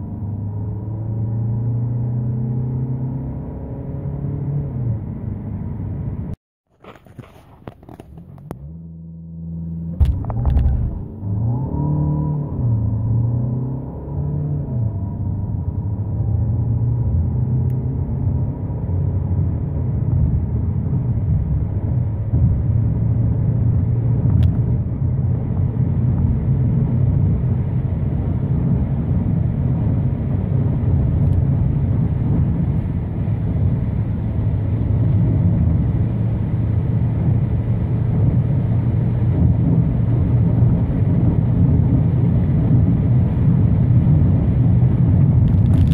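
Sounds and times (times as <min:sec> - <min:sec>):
tyre and wind noise: 0:06.7 - 0:08.6, 0:10.0 - 0:11.2, 0:38.0 - 0:45.9
diesel engine accelerating: 0:08.2 - 0:45.9
gear upshift: 0:09.9 - 0:11.8.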